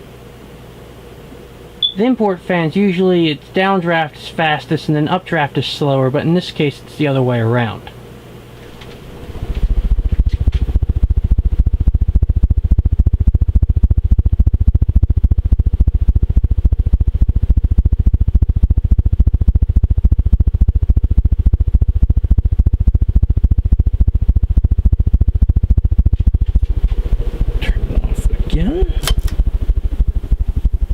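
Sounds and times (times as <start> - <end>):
fan wind buffeting microphone: 8.4 - 30.9.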